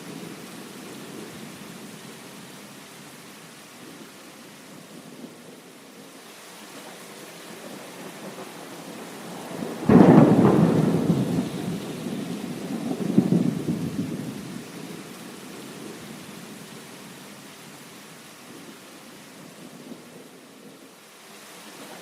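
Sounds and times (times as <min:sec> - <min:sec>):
steady rain: 0:00.0 - 0:22.0
thunderclap rumbling: 0:07.6 - 0:15.1.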